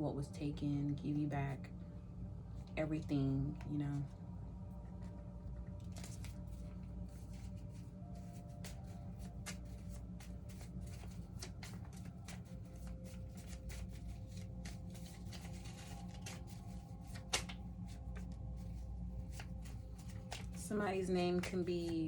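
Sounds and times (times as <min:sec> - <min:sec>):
cards being shuffled: 0:05.0 - 0:22.0.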